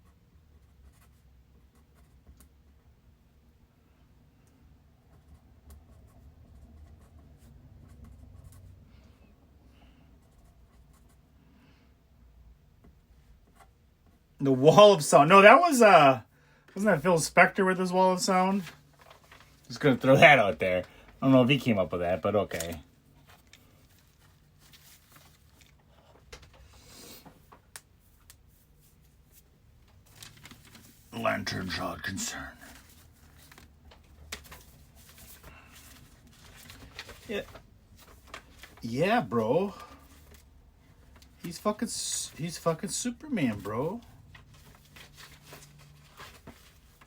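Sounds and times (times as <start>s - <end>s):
soft scratching rustle: 22.5s - 25.8s, 43.6s - 47.0s.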